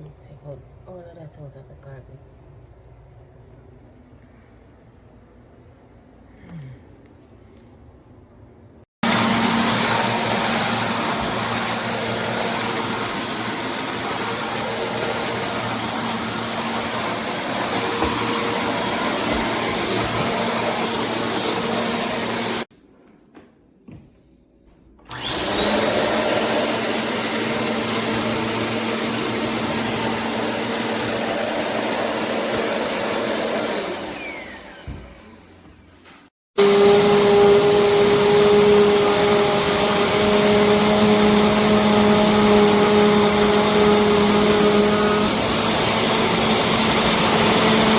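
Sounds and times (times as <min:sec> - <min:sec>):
vacuum cleaner whining: 0:09.0 - 0:22.7, 0:25.0 - 0:35.9, 0:36.5 - 0:47.9.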